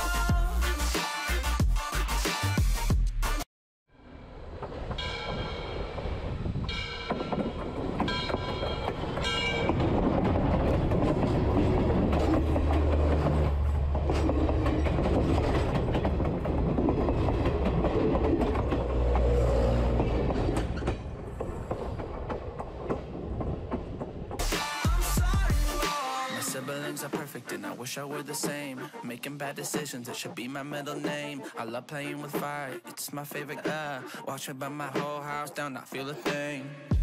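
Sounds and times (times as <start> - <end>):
train passing with heavy rumble: 4.0 - 24.5
wheels clattering on rails: 4.4 - 24.5.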